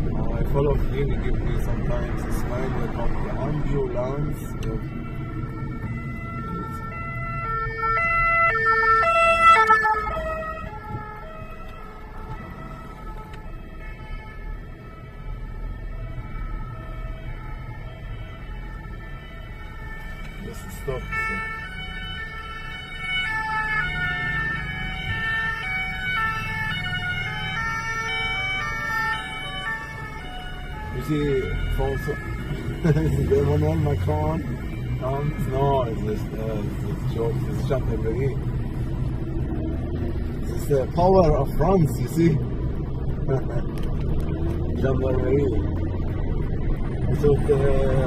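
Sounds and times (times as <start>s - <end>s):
car interior hum: 0.0s - 48.0s
two-tone emergency siren: 3.5s - 41.7s.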